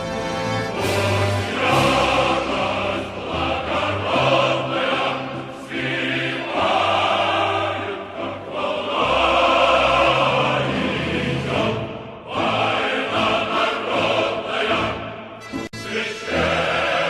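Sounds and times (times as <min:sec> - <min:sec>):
choir singing long notes: 0:00.0 - 0:17.0.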